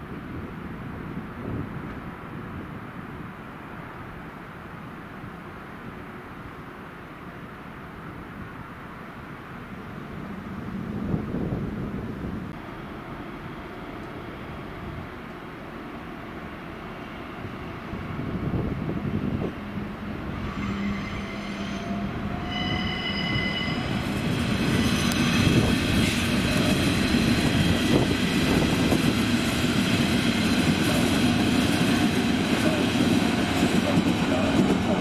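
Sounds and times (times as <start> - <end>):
train running noise: 0.0 - 35.0
train wheels squealing: 20.4 - 28.3.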